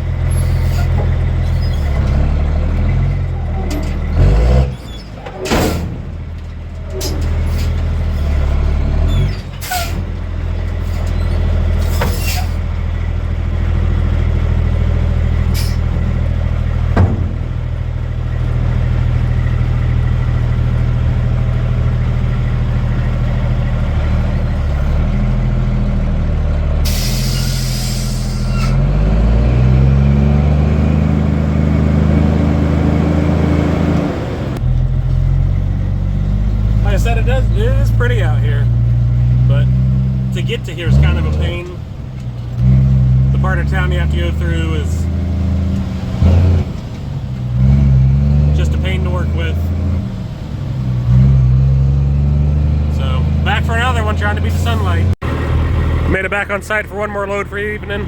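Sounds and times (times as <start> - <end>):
truck diesel engine running: 0.0 - 58.0
air brakes hissing: 11.8 - 12.6, 15.5 - 16.0, 26.8 - 28.8
sharp knocks: 16.9 - 17.7.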